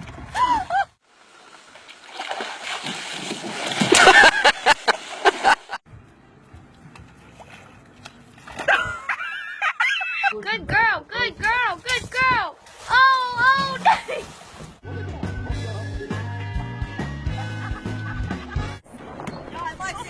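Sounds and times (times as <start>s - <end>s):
water splashing and sloshing: 0.0s - 9.7s, 11.2s - 14.9s.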